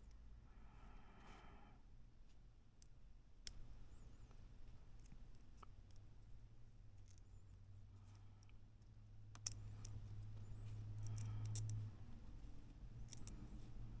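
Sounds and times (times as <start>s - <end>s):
low steady hum: 0.0s - 14.0s
small plastic parts clicking: 9.3s - 10.0s, 11.0s - 11.8s, 13.0s - 13.4s.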